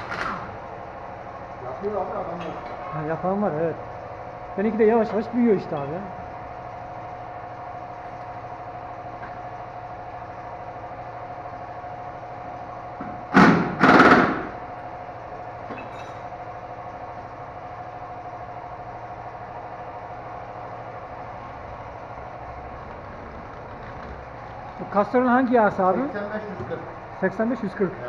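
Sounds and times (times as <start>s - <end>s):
engine idling: 0.0s - 28.0s
loud knocks: 13.0s - 14.6s.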